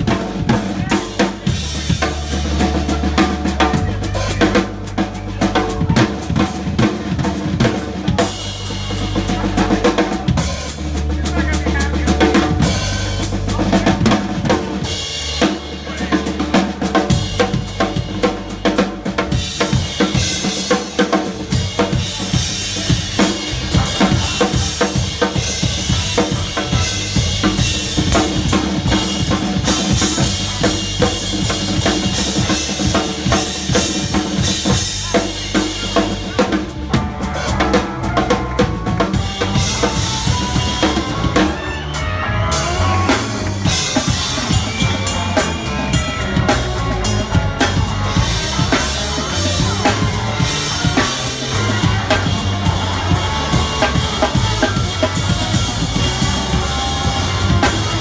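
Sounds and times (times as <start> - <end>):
drum kit beat: 0.0 - 58.0
live rock band playing: 0.0 - 58.0
ringing cymbals: 0.0 - 58.0.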